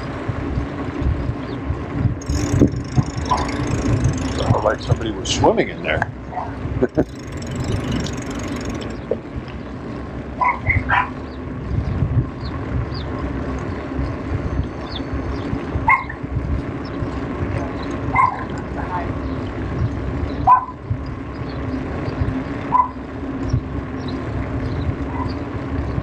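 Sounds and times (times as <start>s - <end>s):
wind and bicycle rolling noise: 0.0s - 26.0s
dog barking: 10.4s - 11.2s, 15.9s - 16.2s, 18.1s - 18.5s, 20.4s - 20.8s, 22.7s - 23.0s.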